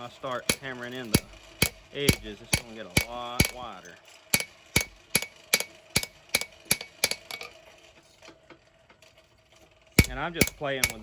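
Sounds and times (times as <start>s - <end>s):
hammer striking steel on anvil: 0.3s - 3.7s, 4.4s - 7.6s, 10.0s - 11.0s.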